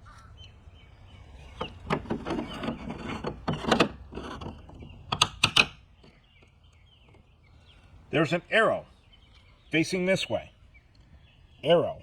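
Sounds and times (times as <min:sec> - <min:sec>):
plastic clicks and scraping: 0:01.6 - 0:07.2.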